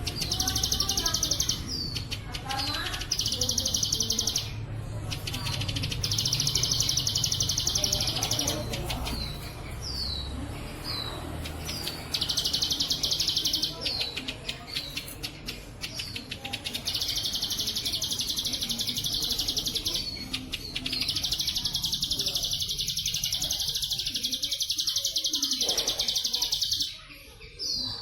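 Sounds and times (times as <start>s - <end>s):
bird chips and clicks: 0.0s - 10.3s, 10.9s - 27.0s.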